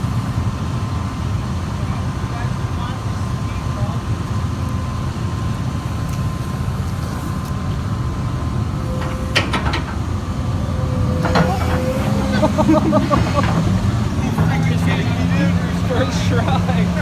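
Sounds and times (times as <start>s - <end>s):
thin steady whine: 5.0s - 17.0s
excavator diesel engine rumbling: 7.1s - 17.0s.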